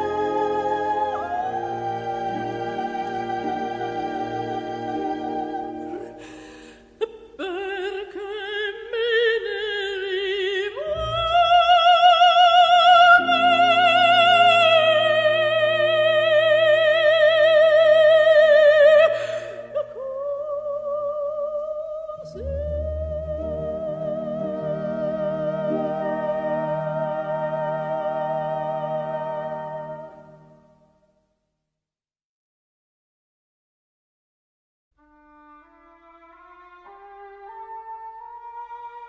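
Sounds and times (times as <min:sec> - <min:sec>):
operatic high voice singing: 0:00.0 - 0:30.6.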